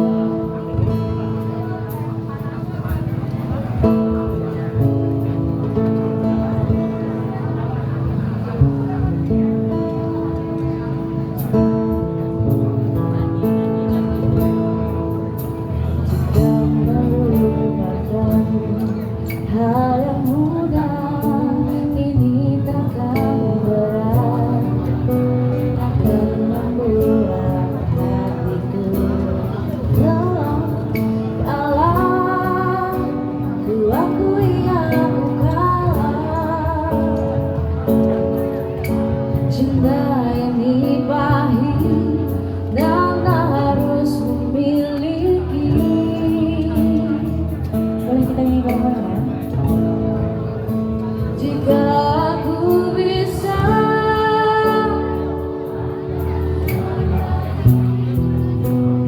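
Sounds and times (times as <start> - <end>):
street band playing: 0.0 - 59.0
woman singing: 16.0 - 37.7, 39.4 - 50.0, 51.2 - 55.8.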